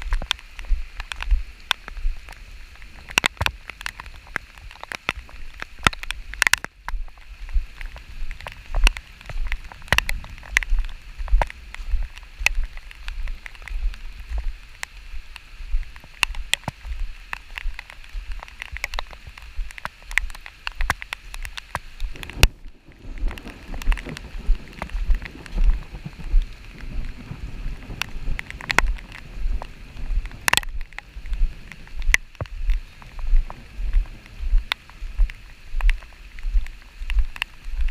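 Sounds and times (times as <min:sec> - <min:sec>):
rain falling: 0:00.0 - 0:37.9
raindrops tapping: 0:00.0 - 0:37.9
low uneven rumble: 0:21.2 - 0:37.9.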